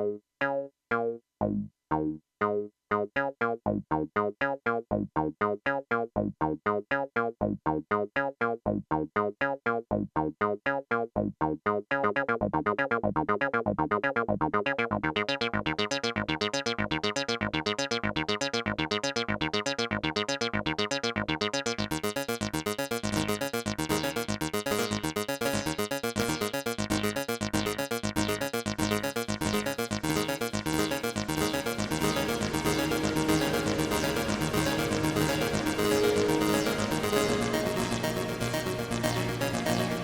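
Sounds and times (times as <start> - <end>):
synth plucked notes: 12.2 - 40.0.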